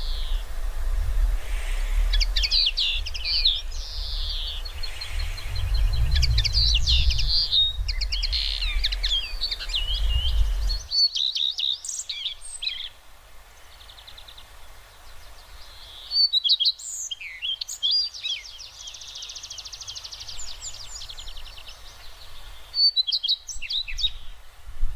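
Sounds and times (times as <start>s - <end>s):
low rumble: 0.0s - 10.9s
small birds chirping and singing: 0.0s - 24.5s.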